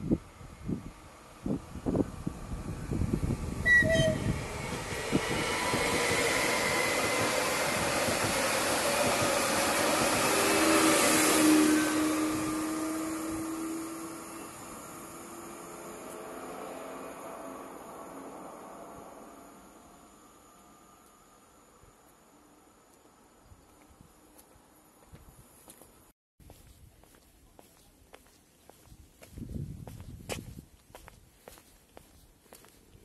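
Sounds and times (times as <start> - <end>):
wind gusts on microphone: 0.0 - 13.8, 28.8 - 31.4
electric train rumbling past: 0.0 - 23.4.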